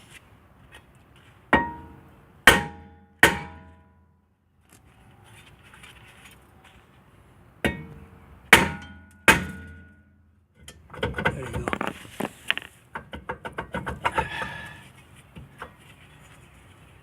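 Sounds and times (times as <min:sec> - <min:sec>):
sledgehammer striking metal: 0:01.6 - 0:04.0, 0:07.6 - 0:10.1.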